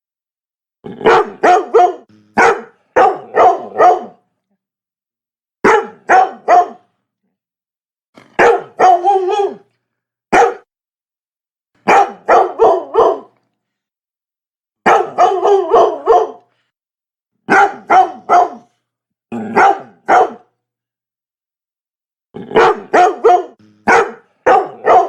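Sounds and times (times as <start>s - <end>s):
dog barking: 1.0s - 4.2s, 5.6s - 6.9s, 8.2s - 9.6s, 10.3s - 10.7s, 11.8s - 13.4s, 14.8s - 16.5s, 17.5s - 20.5s, 22.5s - 25.0s.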